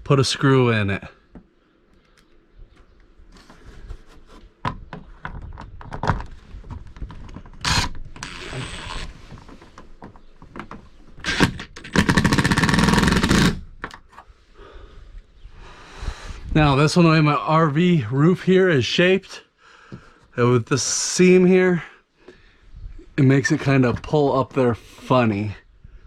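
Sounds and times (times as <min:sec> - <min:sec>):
handling clicks and knocks: 0:04.6 - 0:08.2
power driver driving screw: 0:07.6 - 0:09.1, 0:11.2 - 0:13.7.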